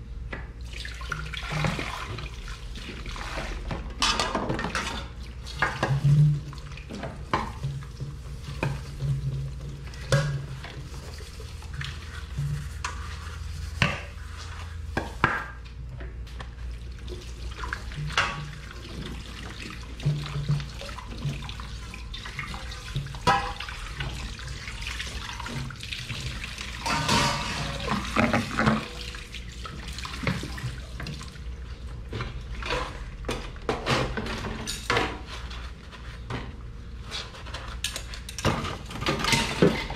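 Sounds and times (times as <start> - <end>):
running tap water: 16.7 - 31.6
dishes clinking: 26.8 - 29.1.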